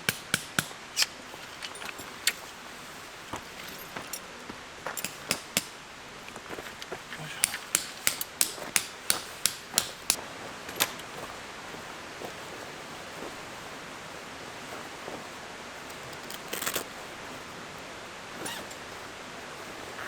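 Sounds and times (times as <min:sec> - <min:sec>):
hammer striking tent peg: 0:00.0 - 0:01.2, 0:05.0 - 0:05.8, 0:07.4 - 0:10.2
outdoor hiss: 0:00.0 - 0:20.0
rustle: 0:00.7 - 0:20.0.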